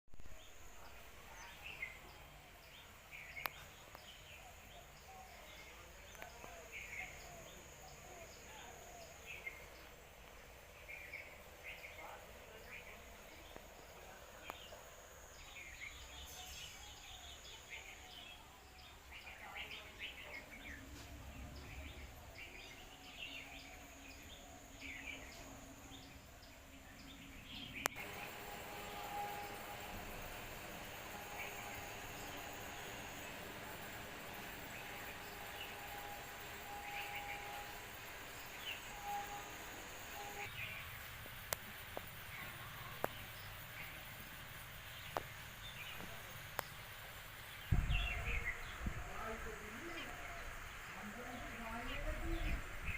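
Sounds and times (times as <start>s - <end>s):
outdoor background noise: 0.0s - 52.9s
small birds chirping: 0.2s - 52.9s
steady high-pitched tone: 27.5s - 40.7s.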